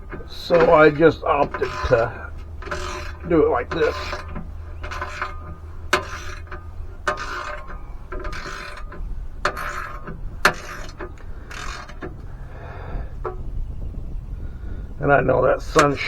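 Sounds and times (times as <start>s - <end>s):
hand ratchet clicking: 0.0s - 12.4s.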